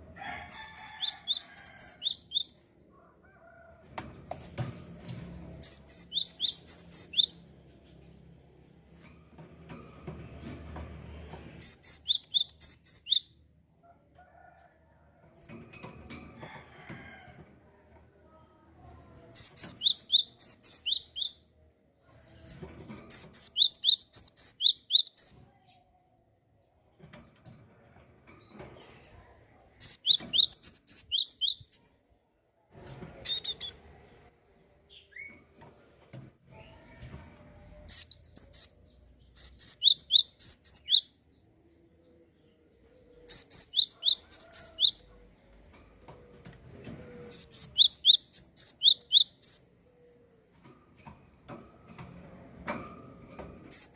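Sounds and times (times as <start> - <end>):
bird singing whistled notes: 5.6 - 7.4, 19.4 - 21.4, 23.1 - 25.2, 29.8 - 31.9, 39.4 - 41.1, 47.3 - 49.6.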